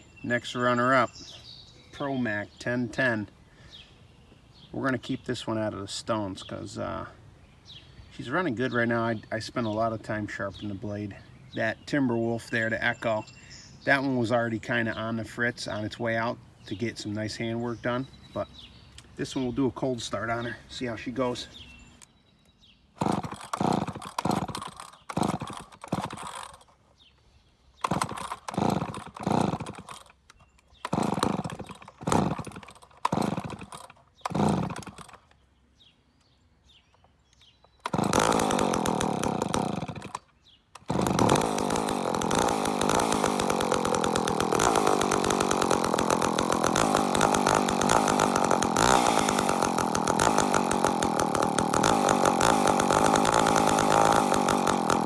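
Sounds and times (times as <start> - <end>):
chainsaw engine running: 23.0 - 26.7, 27.8 - 30.2, 30.8 - 35.3, 37.8 - 55.0
chainsaw pull-cord strokes: 23.0 - 26.8, 27.8 - 35.4, 37.6 - 55.0.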